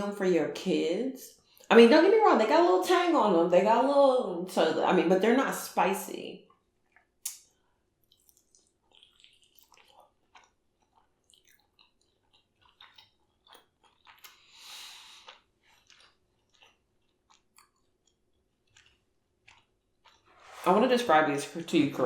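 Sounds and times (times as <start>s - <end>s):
close-up chewing: 6.5s - 20.5s
wet mouth clicks: 7.0s - 7.5s, 8.1s - 10.6s, 11.3s - 17.9s.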